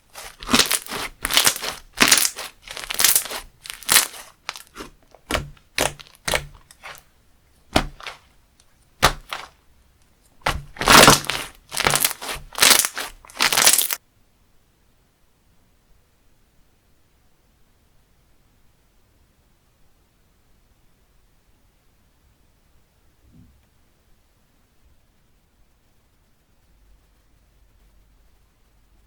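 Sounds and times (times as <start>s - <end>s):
hands squeezing crunchy slime: 0.0s - 7.0s, 7.7s - 8.3s, 9.0s - 9.6s, 10.4s - 14.0s.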